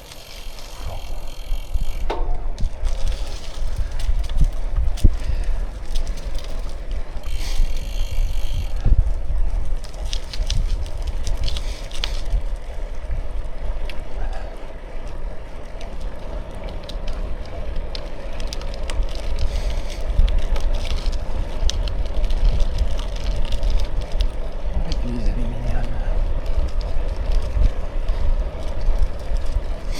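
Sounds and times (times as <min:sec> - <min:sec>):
buzzing rattle: 0:00.0 - 0:04.5, 0:06.5 - 0:09.0
bicycle tyres rolling on rough surface: 0:00.0 - 0:29.9
wind rumble on microphone: 0:00.0 - 0:29.9.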